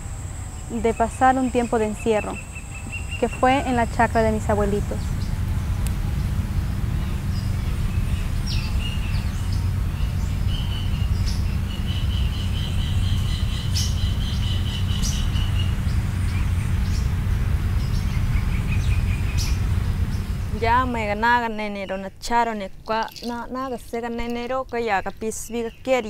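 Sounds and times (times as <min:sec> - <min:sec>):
birds chirping: 0:00.0 - 0:26.0
steady low rumble: 0:00.0 - 0:26.0.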